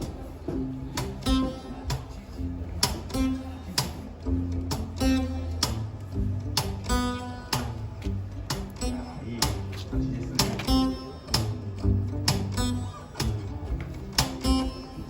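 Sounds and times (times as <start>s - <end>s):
acoustic guitar strumming: 0.5s - 15.0s
bass line: 4.2s - 15.0s.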